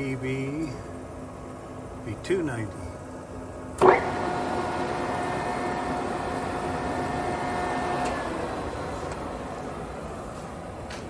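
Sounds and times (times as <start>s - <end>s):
milling machine humming: 3.8s - 11.0s.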